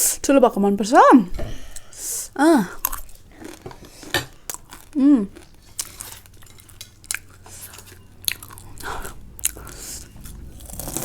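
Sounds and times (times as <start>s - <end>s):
person crunching chips: 2.8s - 11.0s.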